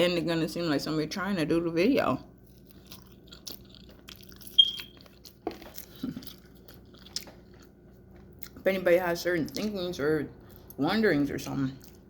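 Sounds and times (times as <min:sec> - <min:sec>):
chewing with mouth clicks: 0:02.4 - 0:08.8, 0:09.4 - 0:10.8, 0:11.6 - 0:12.0.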